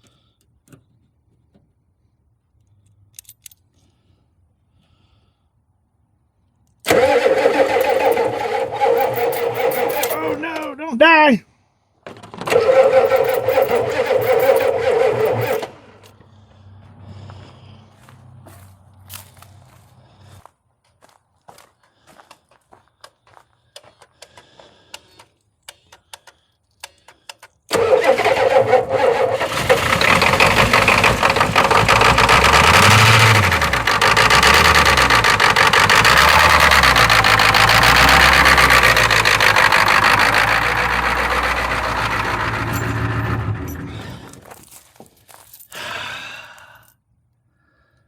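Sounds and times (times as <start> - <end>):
diesel engine running unevenly: 6.9 - 10.7, 12.5 - 20.4, 27.7 - 44.5.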